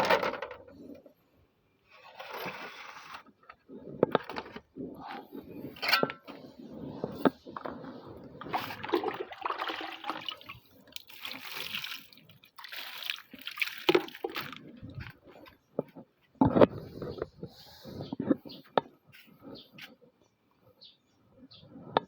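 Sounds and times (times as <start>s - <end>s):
water sloshing and splashing: 7.3s - 15.4s.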